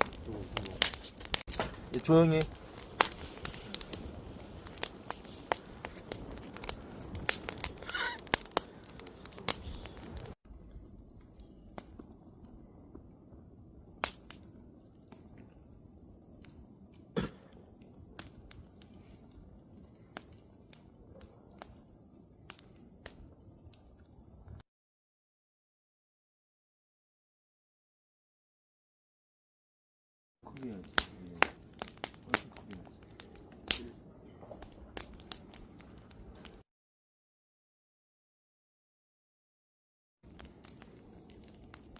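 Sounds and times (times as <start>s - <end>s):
campfire crackling and popping: 0.0s - 24.6s, 30.4s - 36.6s, 40.2s - 41.9s.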